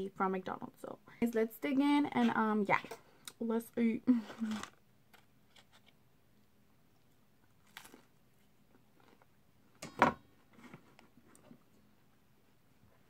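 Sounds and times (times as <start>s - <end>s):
person chewing: 4.4s - 9.8s
crunchy bite: 7.6s - 8.2s.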